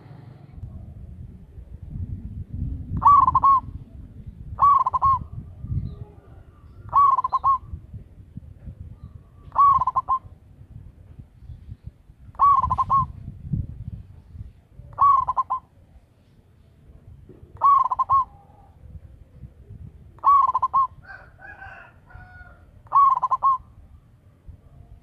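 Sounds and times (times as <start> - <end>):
low background rumble: 0.0 - 7.0
dove cooing trilled calls: 2.9 - 3.8, 4.4 - 7.9, 8.8 - 10.5, 11.8 - 13.3, 14.8 - 16.0, 17.4 - 23.9.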